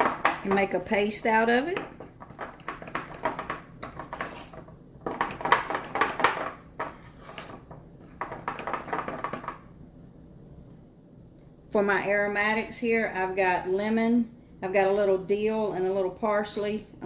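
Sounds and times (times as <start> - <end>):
spoon scraping a bowl: 0.0 - 9.6.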